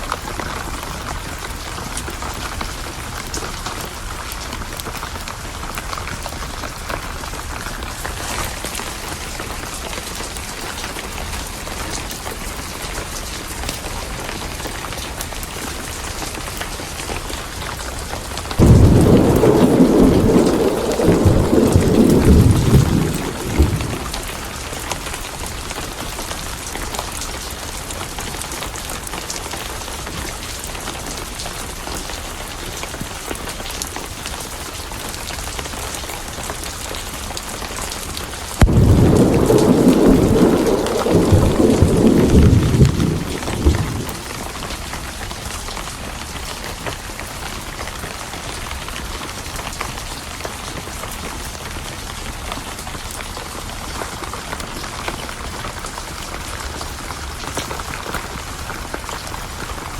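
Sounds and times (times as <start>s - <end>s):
steady rain: 0.0s - 59.9s
thunderclap rumbling: 18.6s - 24.9s, 38.6s - 44.8s.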